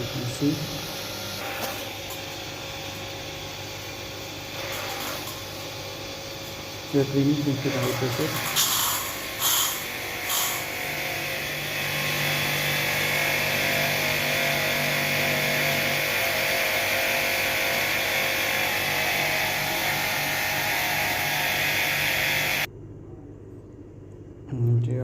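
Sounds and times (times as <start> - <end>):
pressure washer hum: 0.0 - 22.7
water jet spraying: 7.0 - 10.8.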